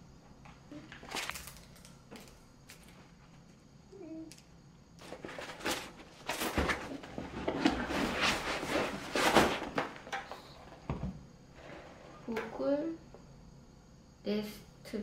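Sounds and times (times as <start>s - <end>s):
objects rustling and scraping: 0.2s - 3.7s, 5.0s - 12.8s.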